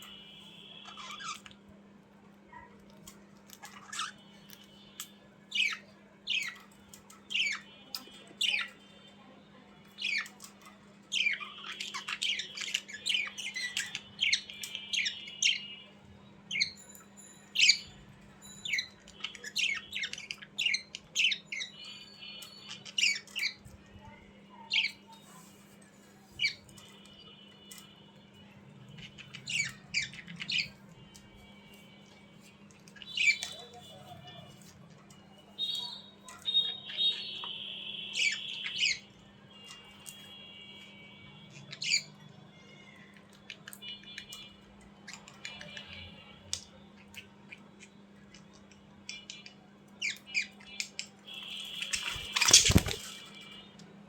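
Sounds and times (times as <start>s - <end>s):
budgerigars squawking and chirping: 0.7s - 1.6s, 3.5s - 4.6s, 11.1s - 15.6s, 18.7s - 23.7s, 29.0s - 30.8s, 32.9s - 34.4s, 36.5s - 39.1s, 41.5s - 42.1s, 48.3s - 53.4s.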